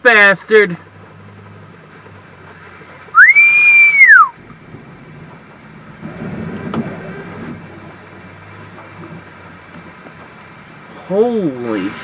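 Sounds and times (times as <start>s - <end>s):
low rumble: 0.9s - 10.9s
gliding whistle-like tone: 3.1s - 4.4s.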